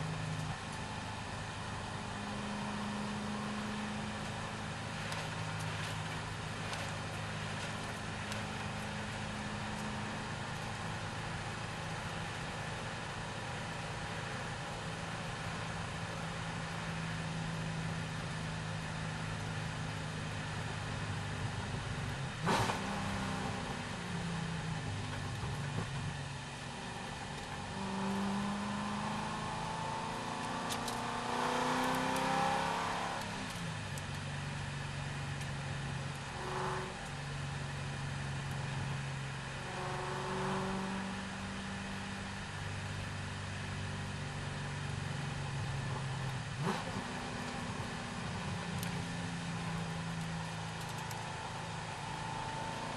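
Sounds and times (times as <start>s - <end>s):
car engine revving through gears: 22.4s - 23.9s, 27.4s - 33.7s, 36.2s - 37.1s, 39.6s - 42.0s, 45.9s - 49.9s, 50.8s - 52.9s.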